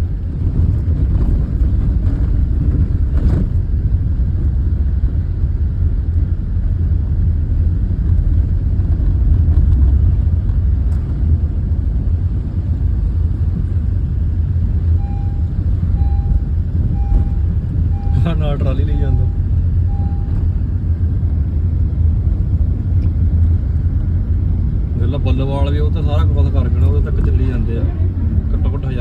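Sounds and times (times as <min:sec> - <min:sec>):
tractor engines rumbling: 0:00.0 - 0:29.0
short beeping tone: 0:14.9 - 0:20.6.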